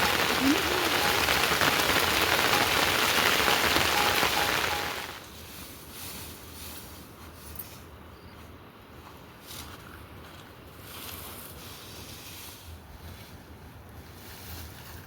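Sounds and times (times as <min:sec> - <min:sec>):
heavy rain: 0:00.0 - 0:05.2.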